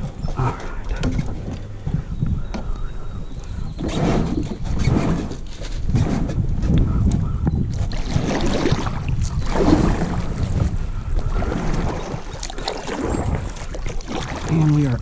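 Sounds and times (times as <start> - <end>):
kayak hull and paddle sounds: 0.0 - 15.0
wind rumble on microphone: 0.0 - 15.0.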